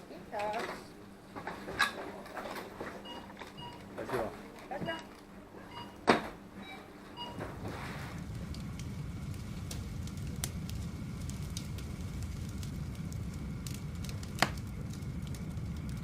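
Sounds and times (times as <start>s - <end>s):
campfire crackling and popping: 7.2s - 16.0s.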